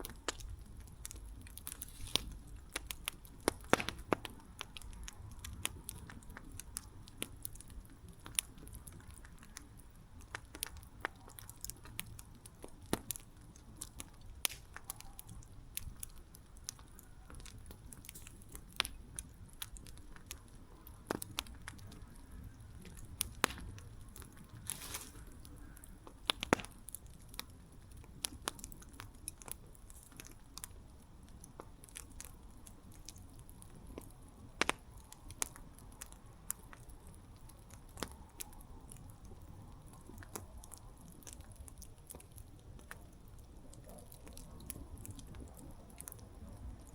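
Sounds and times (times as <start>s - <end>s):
campfire crackling and popping: 0.0s - 46.9s
low rumble of flames: 0.0s - 46.9s.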